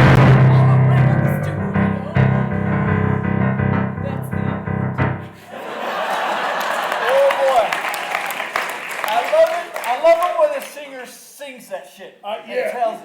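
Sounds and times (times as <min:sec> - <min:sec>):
piano chords: 0:00.0 - 0:05.6
audience applause: 0:05.6 - 0:10.7.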